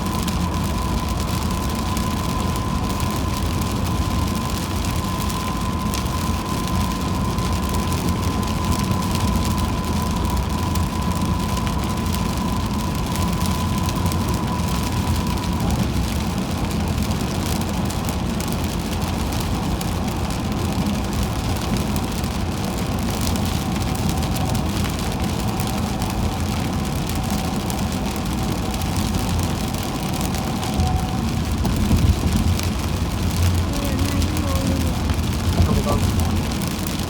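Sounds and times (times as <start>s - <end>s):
low engine rumble: 0.0s - 37.0s
rain on car: 0.0s - 37.0s
tyre noise on wet road: 0.0s - 37.0s.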